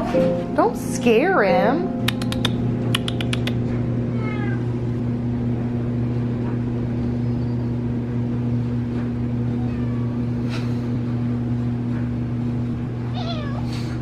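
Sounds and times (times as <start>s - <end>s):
steady low hum: 0.0s - 14.0s
quick clicks: 2.1s - 3.6s
cat meowing: 4.1s - 4.7s, 9.5s - 10.3s, 13.1s - 13.7s.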